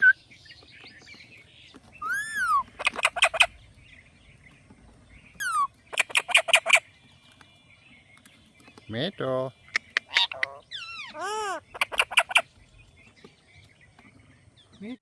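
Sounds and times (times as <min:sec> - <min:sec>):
parrot whistling and chirping: 0:00.0 - 0:00.2, 0:02.0 - 0:03.5, 0:05.4 - 0:06.8, 0:10.0 - 0:12.5.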